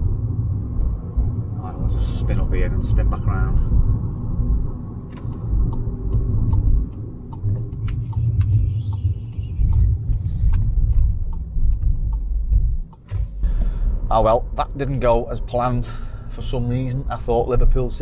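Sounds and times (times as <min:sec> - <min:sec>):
car engine from inside cabin: 0:00.0 - 0:18.0
road rumble: 0:00.0 - 0:18.0
light ticks: 0:05.1 - 0:13.7.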